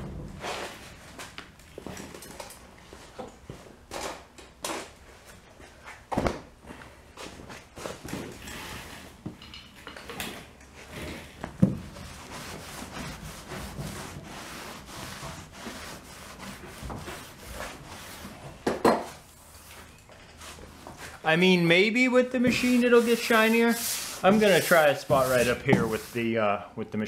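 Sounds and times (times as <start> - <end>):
pad scrubbing boat hull: 11.7 - 18.4, 22.3 - 26.2.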